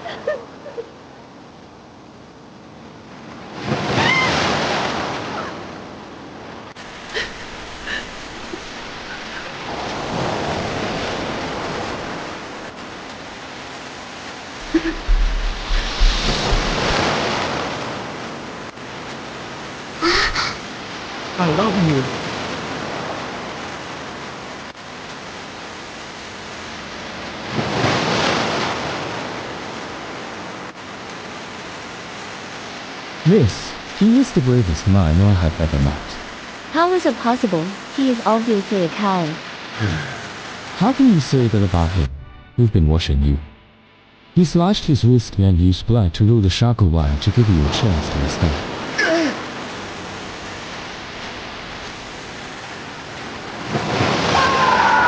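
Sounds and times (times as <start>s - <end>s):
sea water surging and splashing: 0.0s - 41.9s, 47.2s - 55.0s
water surge: 14.6s - 18.2s, 53.6s - 55.0s.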